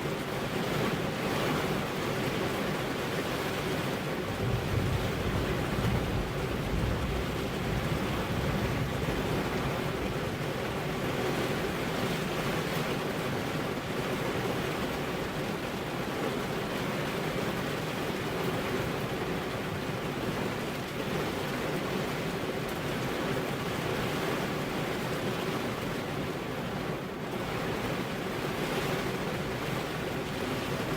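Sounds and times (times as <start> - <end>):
heavy rain falling: 0.0 - 30.9
low rumble of thunder: 4.2 - 11.0.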